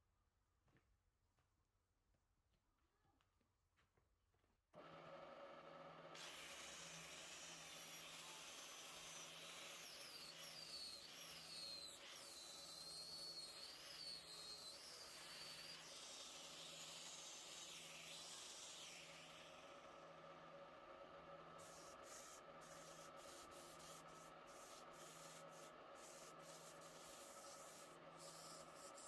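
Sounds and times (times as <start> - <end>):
tool cutting spinning wood: 6.2 - 19.2, 21.7 - 29.0.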